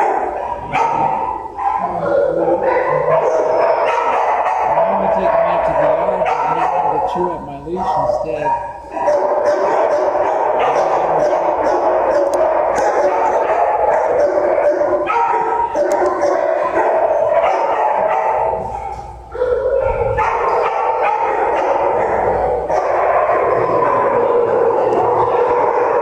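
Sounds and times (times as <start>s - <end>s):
many dogs barking and yipping: 0.0s - 26.0s.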